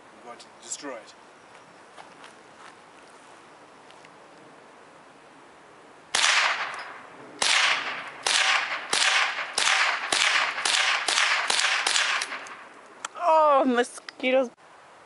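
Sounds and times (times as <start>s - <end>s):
rifle shots with echo: 6.1s - 12.6s.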